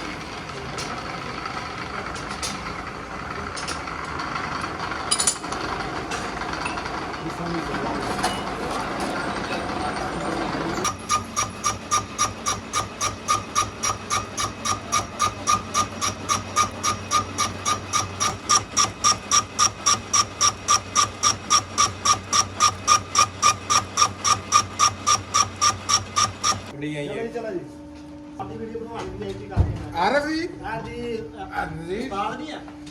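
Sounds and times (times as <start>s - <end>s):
machine hiss: 10.8s - 26.7s
ringing metallic strokes: 10.8s - 26.7s.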